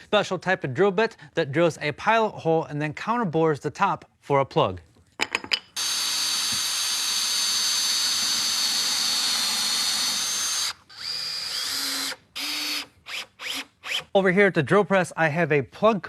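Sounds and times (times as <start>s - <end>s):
power drill boring into wood: 5.8s - 14.1s.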